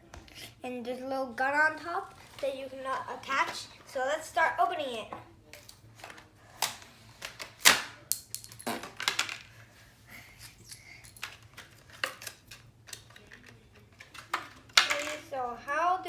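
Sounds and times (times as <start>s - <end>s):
packaging clicks and crinkly scrapes: 1.7s - 4.0s, 10.5s - 14.8s.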